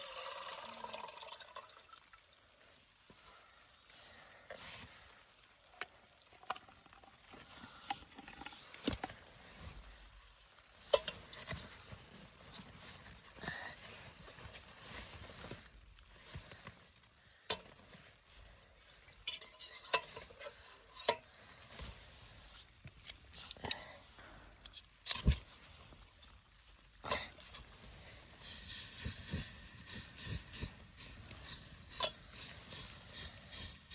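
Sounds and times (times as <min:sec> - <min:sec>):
faint hiss: 0:00.0 - 0:33.9.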